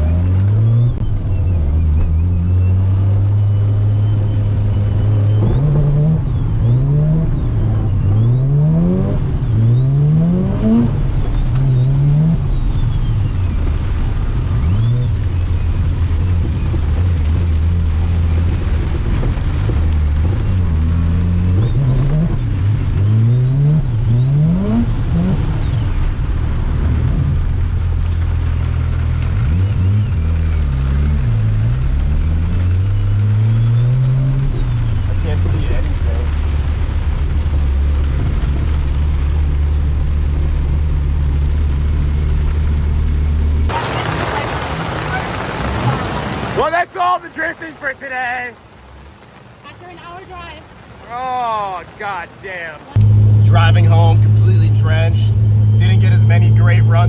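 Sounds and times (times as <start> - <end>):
rotary engine revving: 4.9 - 12.6, 52.9 - 57.0.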